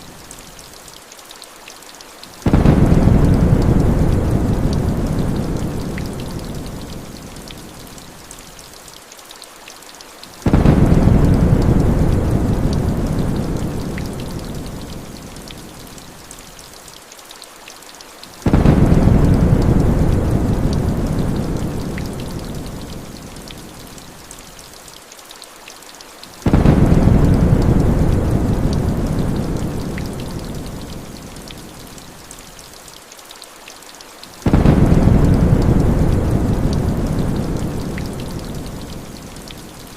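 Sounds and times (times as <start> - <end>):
heavy rain hissing: 2.2 - 8.8, 10.2 - 16.8, 18.2 - 24.8, 26.2 - 33.0, 34.2 - 39.9
thunder rumbling: 2.4 - 7.0, 10.5 - 14.9, 18.5 - 22.8, 26.4 - 30.9, 34.4 - 39.1.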